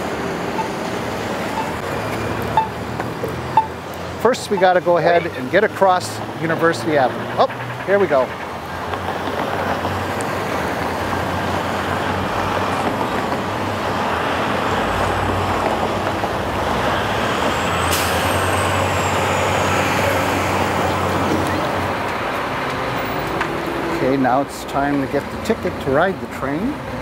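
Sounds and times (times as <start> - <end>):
traffic engine hum: 0.0 - 27.0
high squeal: 1.5 - 1.8, 17.2 - 21.8.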